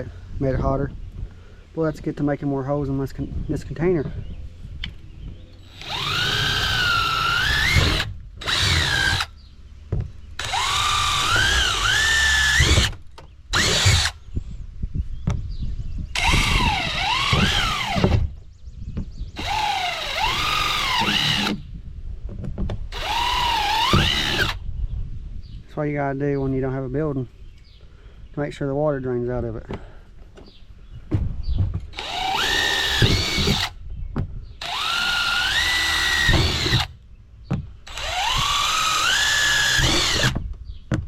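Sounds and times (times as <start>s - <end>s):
power drill boring: 5.6s - 9.3s, 10.4s - 14.2s, 16.2s - 18.3s, 19.4s - 21.6s, 22.9s - 24.6s, 31.9s - 33.8s, 34.6s - 36.9s, 37.9s - 40.4s.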